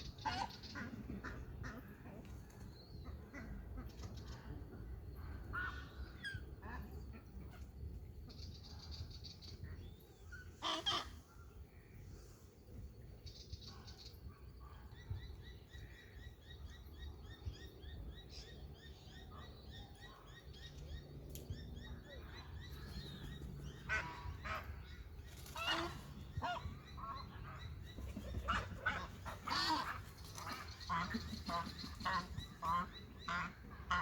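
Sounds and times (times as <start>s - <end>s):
geese honking: 28.5s - 34.0s.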